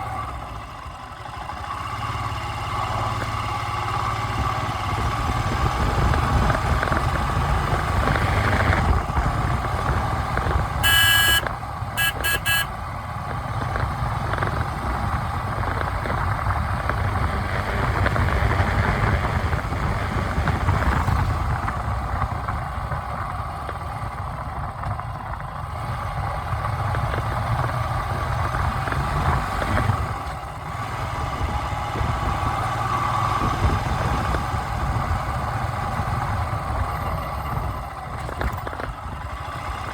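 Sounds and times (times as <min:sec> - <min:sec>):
vehicle engine and road noise: 0:00.0 - 0:39.9
car horn honking: 0:10.8 - 0:12.8.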